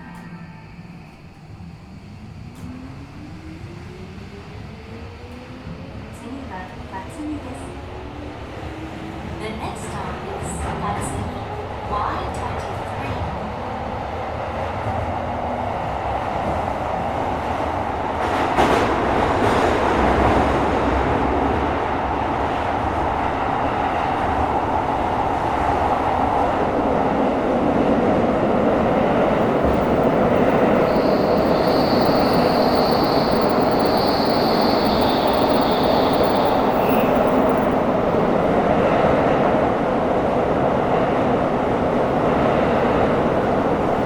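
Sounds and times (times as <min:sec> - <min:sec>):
subway train wheel-on-rail noise: 0:00.0 - 0:44.0
high steady whining tones: 0:28.2 - 0:38.1.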